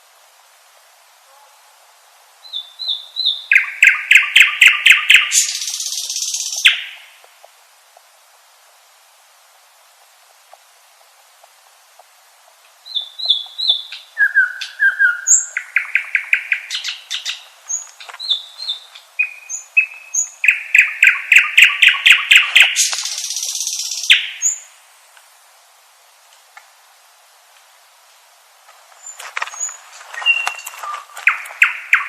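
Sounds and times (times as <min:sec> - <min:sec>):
nightingale singing: 0:02.4 - 0:07.3, 0:12.7 - 0:24.8, 0:29.0 - 0:32.0.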